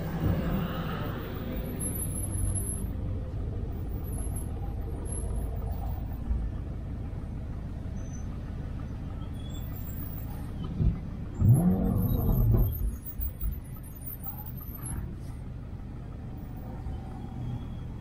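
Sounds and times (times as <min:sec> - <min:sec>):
car engine running: 0:03.0 - 0:16.6.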